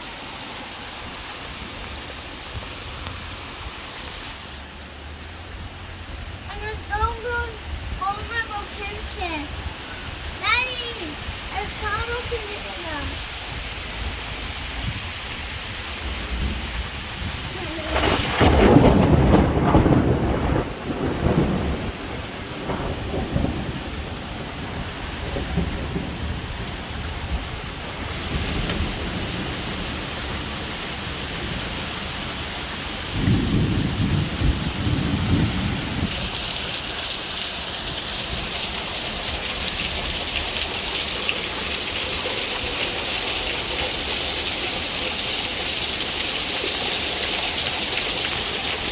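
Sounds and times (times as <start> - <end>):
heavy rain falling: 0.0 - 48.9
thunder rumbling: 13.0 - 36.7.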